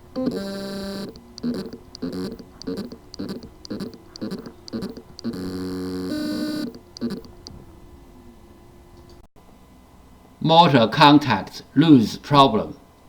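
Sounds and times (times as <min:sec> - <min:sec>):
hard drive short chirps: 0:00.0 - 0:07.5
hard drive motor buzzing: 0:00.0 - 0:07.6.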